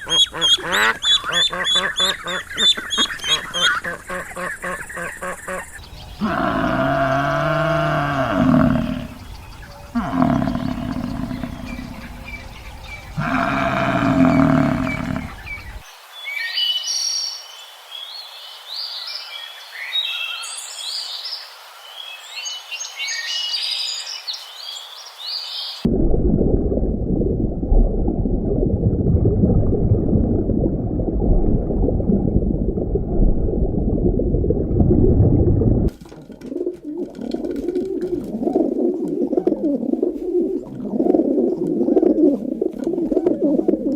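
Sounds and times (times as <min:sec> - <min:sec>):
birds chirping: 0:00.0 - 0:15.9
low animal calls: 0:05.8 - 0:15.8
low rumbling noise: 0:05.8 - 0:15.8, 0:25.9 - 0:35.9.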